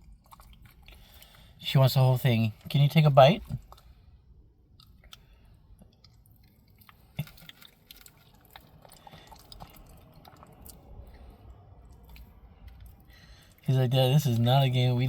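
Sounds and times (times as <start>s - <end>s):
dog chewing wetly: 0.0s - 1.4s, 4.8s - 13.1s.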